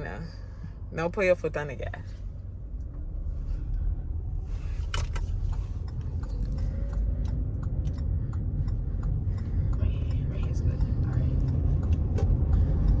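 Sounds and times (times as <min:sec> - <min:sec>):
car engine and road rumble: 0:00.0 - 0:13.0
hazard light flasher ticking: 0:05.8 - 0:13.0.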